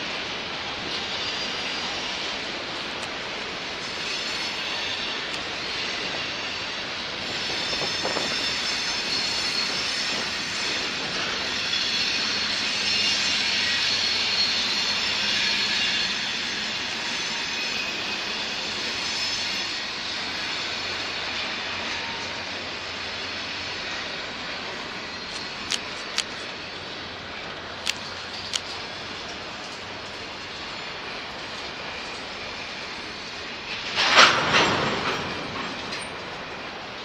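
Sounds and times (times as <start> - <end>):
wheels rumbling on track: 0.0 - 37.0.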